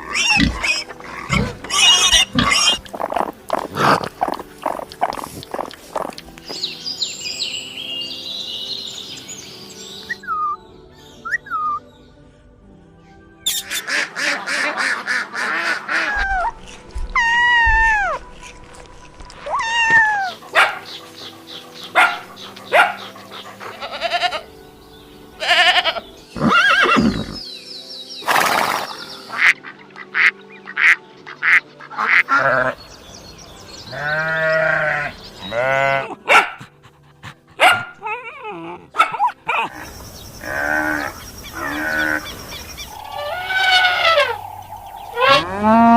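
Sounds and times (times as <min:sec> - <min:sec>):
farm animal calls: 0:00.0 - 0:06.4, 0:19.4 - 0:24.5, 0:25.4 - 0:27.4, 0:28.8 - 0:32.8, 0:33.9 - 0:36.5, 0:39.0 - 0:45.9
rising and falling animal calls: 0:19.4 - 0:24.5, 0:39.5 - 0:45.9.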